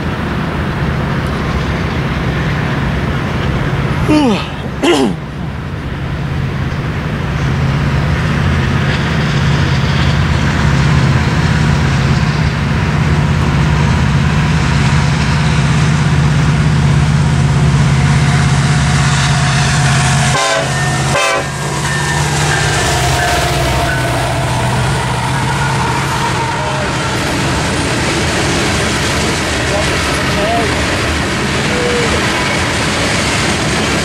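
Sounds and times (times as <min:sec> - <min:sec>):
freight train rumbling past: 0:00.0 - 0:34.0
higher tones: 0:17.4 - 0:29.6.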